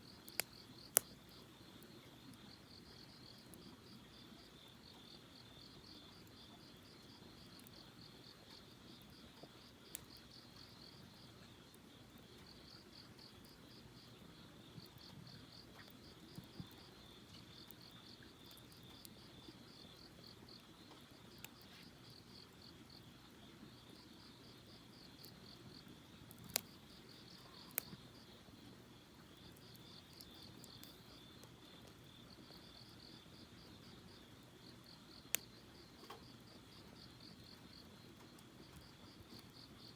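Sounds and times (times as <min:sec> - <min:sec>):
crickets chirping: 0:00.0 - 0:39.9
campfire pops: 0:00.1 - 0:02.4, 0:24.6 - 0:28.3, 0:29.2 - 0:32.0.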